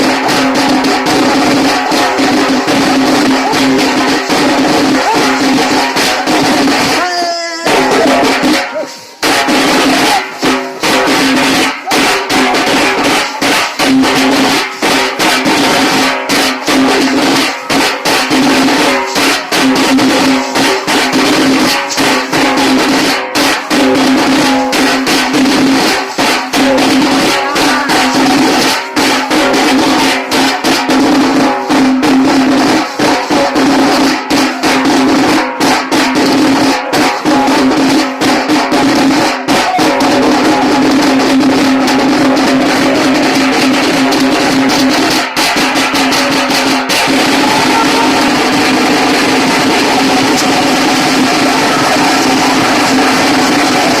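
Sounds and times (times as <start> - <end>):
drums beaten with sticks: 0.0 - 54.0.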